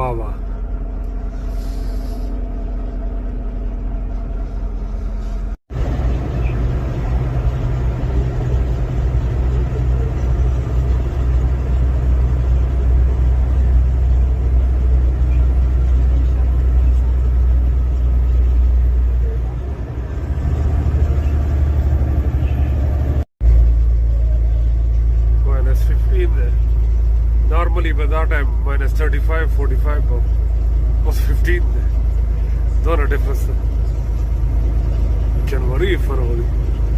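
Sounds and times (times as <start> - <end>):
truck engine and road rumble: 0.0 - 36.9.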